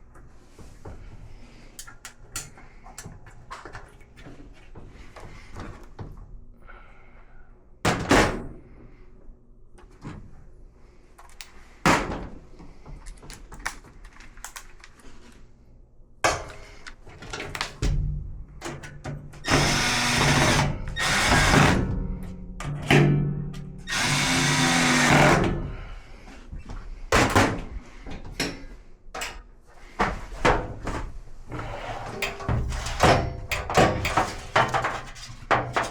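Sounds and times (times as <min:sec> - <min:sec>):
power drill running in bursts: 0:19.5 - 0:21.8, 0:23.9 - 0:25.5
metal parts knocking and clunking: 0:32.0 - 0:35.9.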